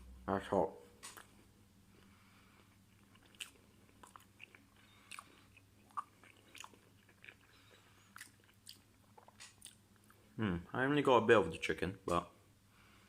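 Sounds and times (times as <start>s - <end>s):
close chewing of food: 1.0s - 10.3s.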